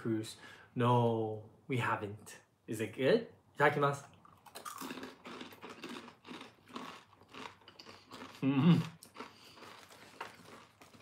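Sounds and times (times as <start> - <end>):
crunchy chewing: 4.2 - 11.0
person humming mm: 8.4 - 9.0.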